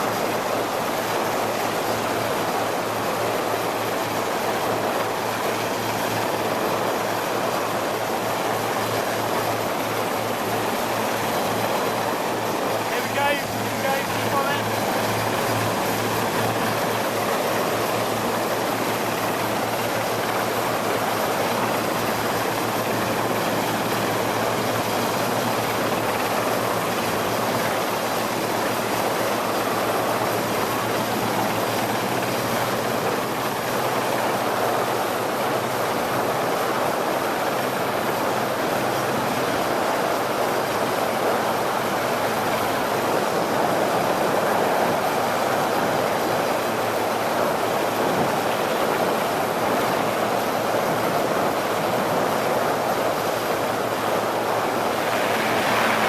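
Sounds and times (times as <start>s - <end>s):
boat engine drone: 0.0s - 56.0s
rushing wind and water: 0.0s - 56.0s.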